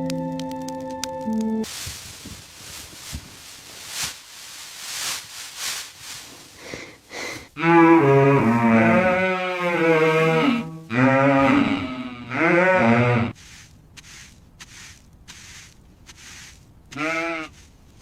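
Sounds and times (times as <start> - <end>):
soft hissing noise: 1.6 - 7.6, 13.3 - 18.0
cow mooing: 7.6 - 13.4.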